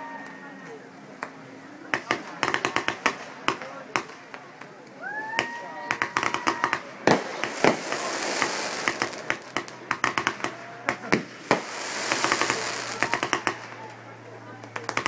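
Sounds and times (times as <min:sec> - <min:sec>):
fireworks crackling: 0:00.2 - 0:15.0
fireworks bursting: 0:01.3 - 0:15.0
sizzling hiss: 0:07.2 - 0:09.9, 0:11.2 - 0:14.0.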